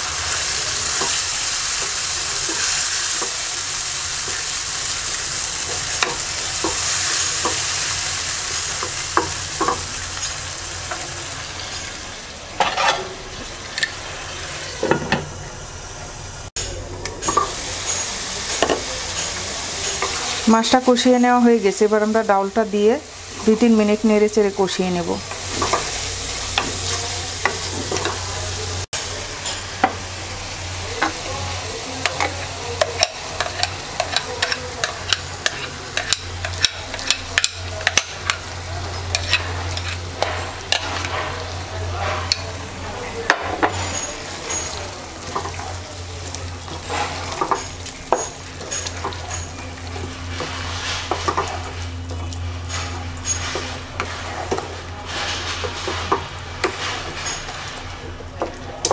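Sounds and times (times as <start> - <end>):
food sizzling in a pot: 0.0 - 58.9
spatula scraping a pot: 12.6 - 13.2, 31.1 - 42.6, 46.6 - 57.8.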